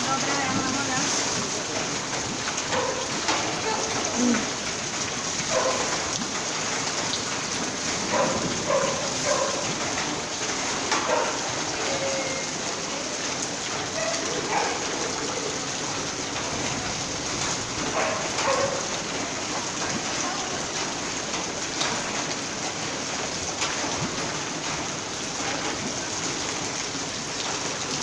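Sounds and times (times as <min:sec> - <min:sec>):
heavy rain: 0:00.0 - 0:28.0.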